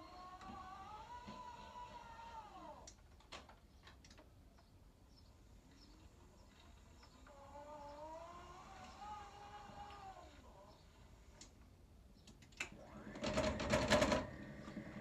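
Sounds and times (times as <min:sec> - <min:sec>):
electric motor whining: 0:00.0 - 0:02.9, 0:06.5 - 0:11.3.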